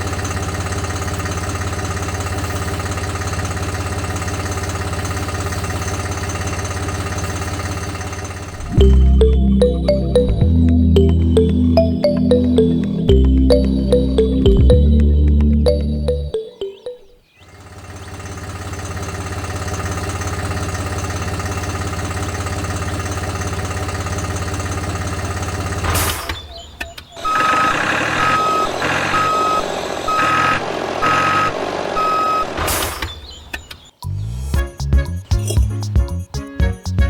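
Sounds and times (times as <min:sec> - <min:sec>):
reversing alarm beeping: 0:27.2 - 0:32.6.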